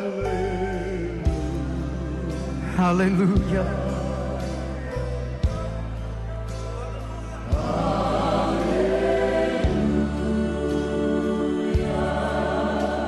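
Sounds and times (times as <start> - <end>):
low bass notes: 0.0 - 13.0
sustained keyboard chords: 0.0 - 13.0
choir singing: 6.9 - 13.0.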